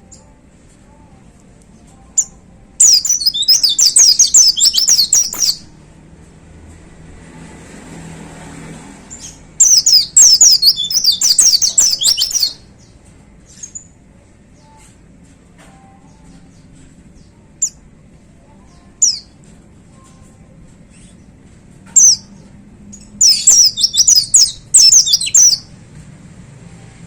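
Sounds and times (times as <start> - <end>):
bird chirping high quick notes: 2.8 - 5.7, 9.6 - 12.6, 23.1 - 25.6.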